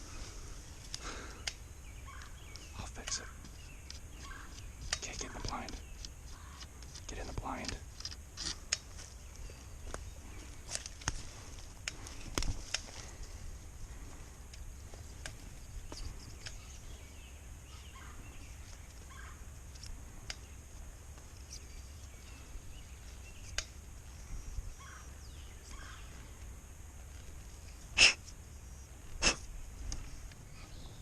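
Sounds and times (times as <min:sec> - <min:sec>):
faint short bird calls: 0:01.0 - 0:07.8, 0:23.3 - 0:26.2
wild turkey calling: 0:01.3 - 0:07.7, 0:17.7 - 0:19.4, 0:24.2 - 0:26.2.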